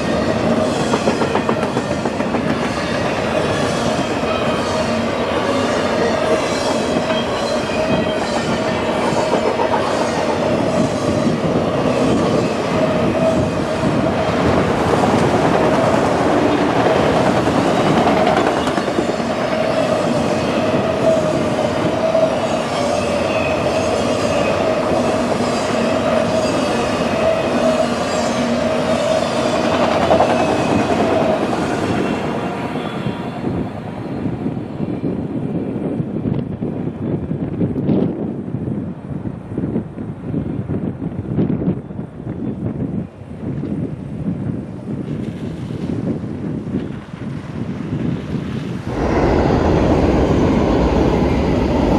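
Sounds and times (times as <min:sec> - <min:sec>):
train wheel squeal: 0:00.0 - 0:15.2, 0:17.4 - 0:34.4.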